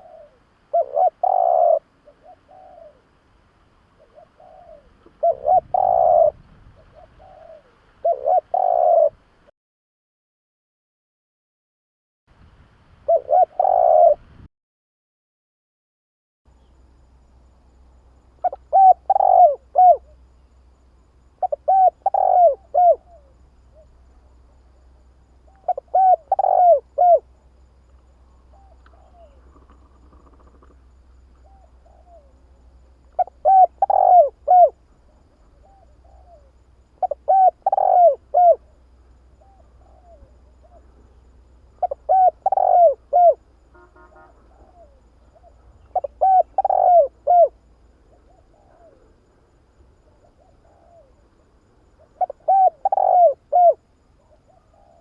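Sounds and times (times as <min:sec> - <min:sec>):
dove cooing: 0:00.0 - 0:03.2, 0:04.0 - 0:09.2, 0:13.1 - 0:14.2, 0:18.4 - 0:20.2, 0:21.4 - 0:24.0, 0:25.4 - 0:27.4, 0:28.4 - 0:49.3, 0:50.0 - 0:51.4, 0:52.0 - 0:55.0
faint low hum: 0:16.5 - 0:55.0.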